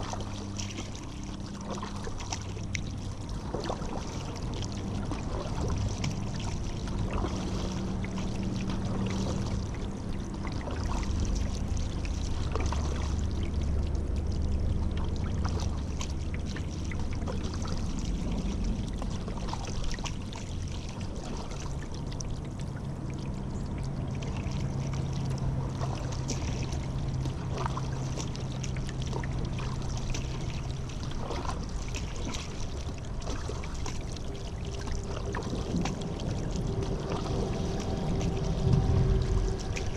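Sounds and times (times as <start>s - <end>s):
paddle splashing in water: 0.0s - 39.9s.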